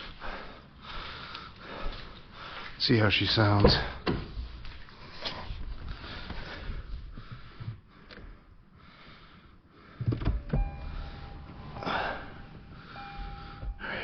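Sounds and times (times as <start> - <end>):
steady electronic tone: 10.4 - 14.0.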